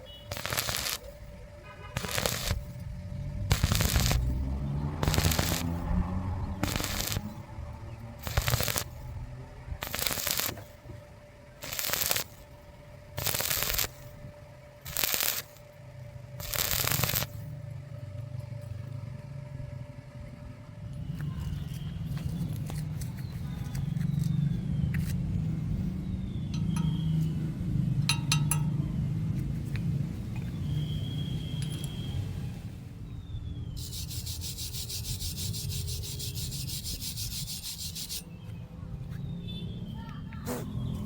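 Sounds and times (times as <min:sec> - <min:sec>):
short welding bursts crackling: 0:00.2 - 0:01.2, 0:02.0 - 0:02.8, 0:03.5 - 0:04.4, 0:05.0 - 0:05.9, 0:06.6 - 0:07.5, 0:08.2 - 0:09.1, 0:09.8 - 0:10.8, 0:11.6 - 0:12.4, 0:13.2 - 0:14.2, 0:14.8 - 0:15.7, 0:16.4 - 0:17.5, 0:33.8 - 0:38.2
light metal clinks: 0:26.5 - 0:29.1.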